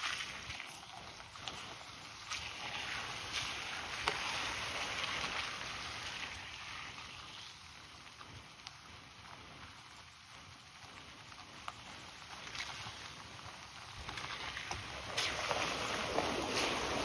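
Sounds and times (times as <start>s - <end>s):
rushing splashing water: 0.0s - 7.6s, 12.4s - 17.0s.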